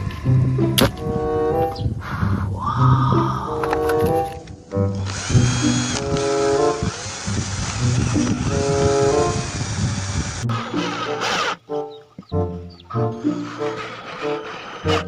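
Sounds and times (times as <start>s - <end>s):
background music: 0.0s - 9.8s, 10.4s - 15.0s
power drill whirring: 3.7s - 11.6s, 13.1s - 15.0s.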